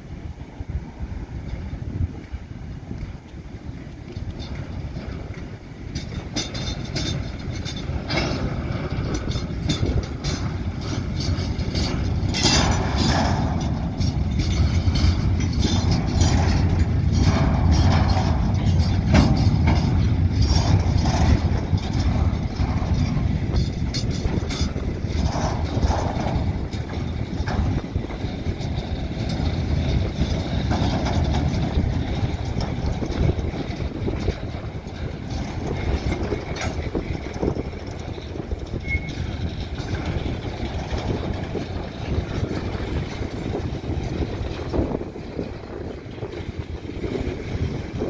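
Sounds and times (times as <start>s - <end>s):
freight train wheels rumbling: 0.0s - 48.0s
wagon knocks: 6.0s - 37.7s.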